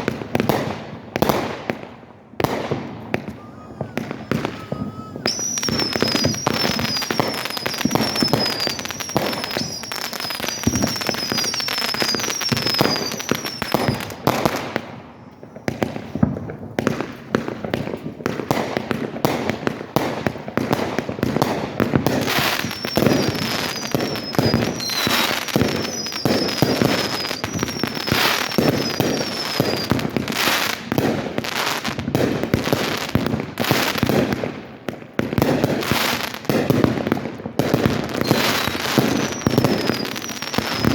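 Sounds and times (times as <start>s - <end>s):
fireworks bangs and crackling: 0.0s - 40.9s
high falling whistle: 3.2s - 14.1s, 22.4s - 30.0s, 38.2s - 40.9s.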